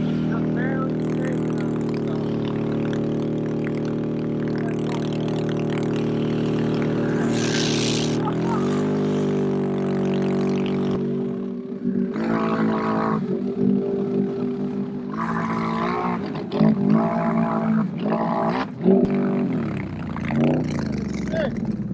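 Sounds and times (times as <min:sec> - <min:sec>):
atv engine running: 0:00.0 - 0:21.9
short hiss: 0:07.3 - 0:08.2.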